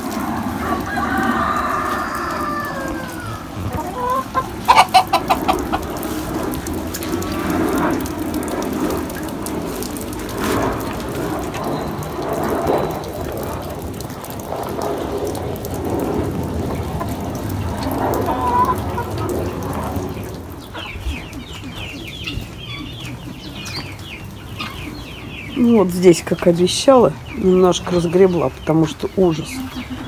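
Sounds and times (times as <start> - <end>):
chickens clucking: 0.4 - 7.4, 16.6 - 30.0.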